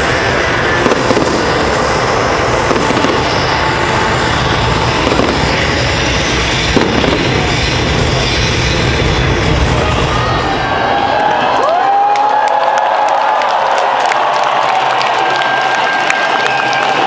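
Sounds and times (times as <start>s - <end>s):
sharp firework bang: 0.0s - 11.0s
rumble of firework bursts: 0.0s - 11.6s
fireworks crackling and popping: 0.0s - 11.8s.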